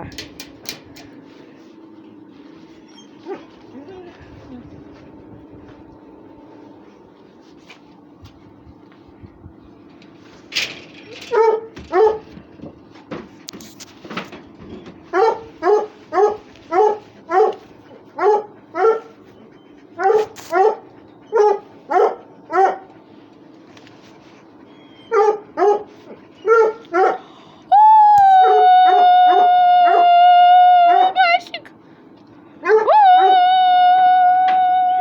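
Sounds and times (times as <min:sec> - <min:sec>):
dog barking: 0:11.3 - 0:12.3, 0:15.1 - 0:17.6, 0:18.2 - 0:19.1, 0:20.0 - 0:22.9, 0:25.1 - 0:27.2, 0:32.6 - 0:32.9.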